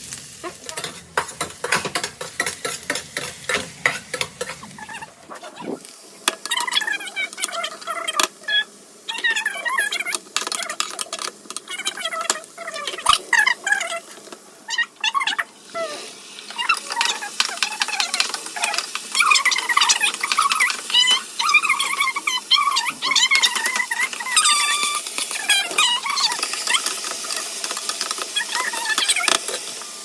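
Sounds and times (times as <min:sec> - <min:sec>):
metal spatula scraping a pan: 0:00.0 - 0:05.6.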